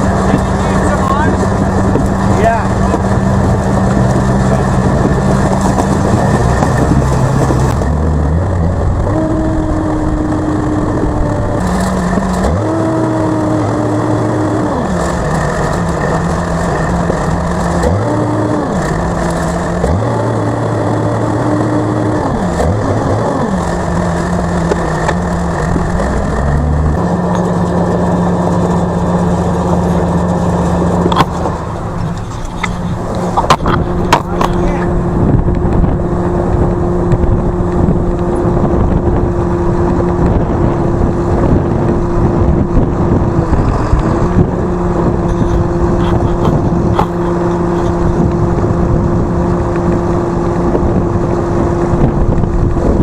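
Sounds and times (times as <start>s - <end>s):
vehicle engine revving: 0.0s - 53.0s.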